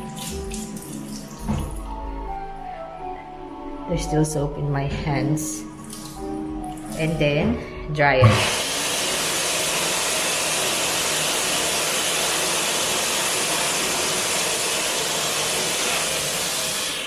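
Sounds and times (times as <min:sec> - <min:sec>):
hand dryer blowing air: 0:08.2 - 0:17.0.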